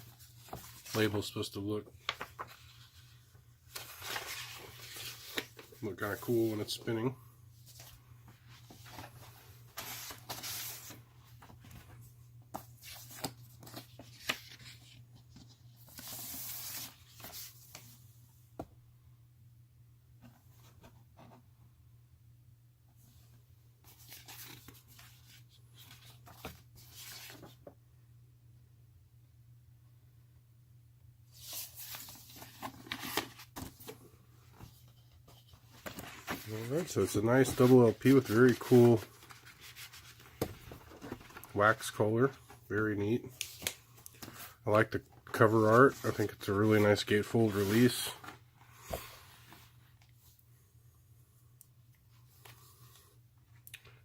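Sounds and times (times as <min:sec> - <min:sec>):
paper sleeves rustling and sliding: 0:00.0 - 0:01.4, 0:02.0 - 0:18.1, 0:23.0 - 0:27.6, 0:31.3 - 0:50.4.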